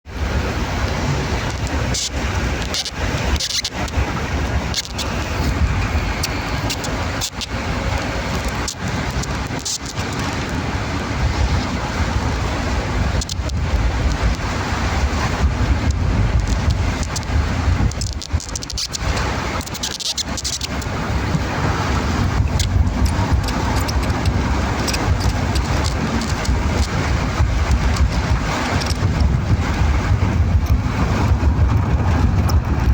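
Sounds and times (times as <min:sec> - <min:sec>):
low rumble: 0:00.0 - 0:19.6, 0:20.7 - 0:32.9.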